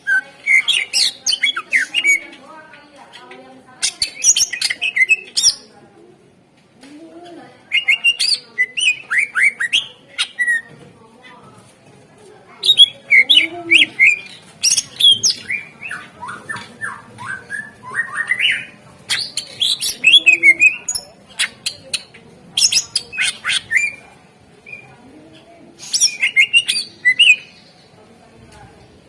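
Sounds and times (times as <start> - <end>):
bird chirping and whistling: 12.7 - 21.0, 25.8 - 27.5.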